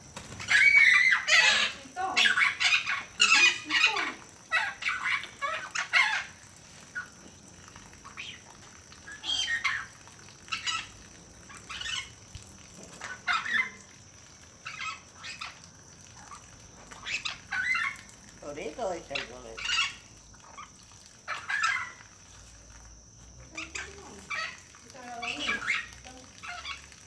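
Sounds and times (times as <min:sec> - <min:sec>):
bird squawks and clucks: 0:00.2 - 0:07.3, 0:08.0 - 0:12.2, 0:12.9 - 0:13.9, 0:14.6 - 0:18.1, 0:19.2 - 0:22.4.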